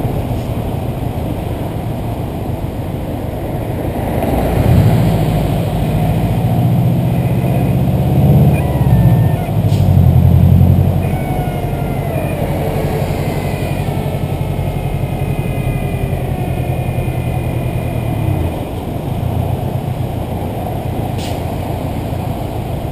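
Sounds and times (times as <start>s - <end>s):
turbocharged car engine: 0.0s - 22.9s.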